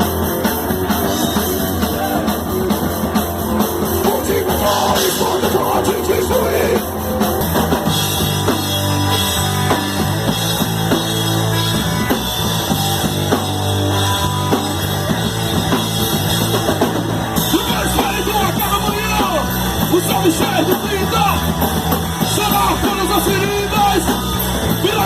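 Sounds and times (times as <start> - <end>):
punk rock band playing: 0.0 - 25.0
person singing: 4.0 - 6.9.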